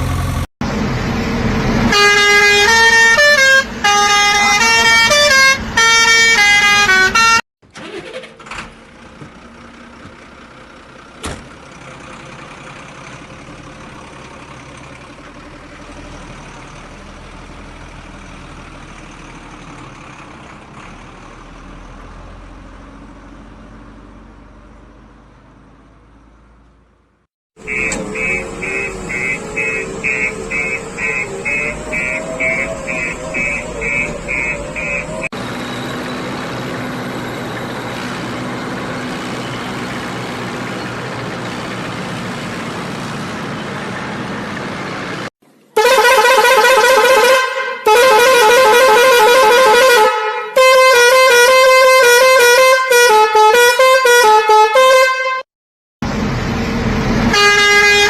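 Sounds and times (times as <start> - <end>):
engine rumble: 0.0 - 5.8, 7.6 - 45.7
vehicle horn honks: 1.9 - 7.4, 27.6 - 35.3, 45.8 - 55.5, 57.3 - 58.0
repeated beep: 27.6 - 35.3
motor drone: 27.6 - 37.6.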